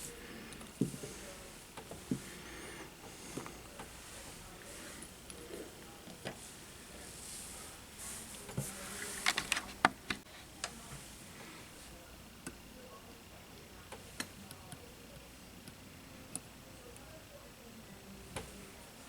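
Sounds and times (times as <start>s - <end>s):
soft rustle: 3.5s - 9.8s.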